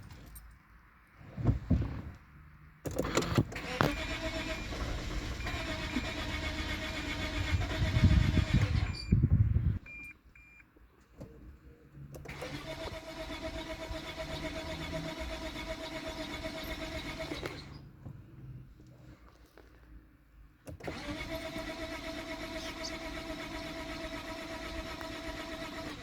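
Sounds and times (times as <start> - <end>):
car engine cranking: 2.9 - 10.0, 12.2 - 17.9, 20.7 - 26.0
short beeps: 9.8 - 10.6.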